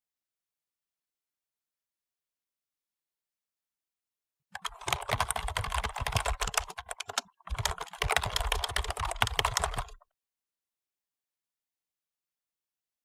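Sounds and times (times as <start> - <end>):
keyboard typing: 4.6 - 10.0.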